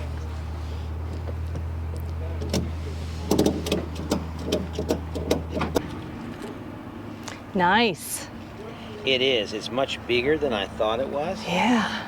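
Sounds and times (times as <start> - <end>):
vehicle engine idling: 0.0 - 12.0
sharp clicks and knocks: 1.1 - 6.6.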